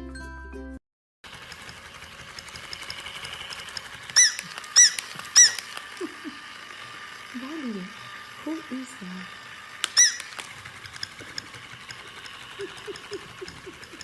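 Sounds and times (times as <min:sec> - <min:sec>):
short high-pitched squeaks: 0:04.1 - 0:06.4, 0:09.8 - 0:10.6.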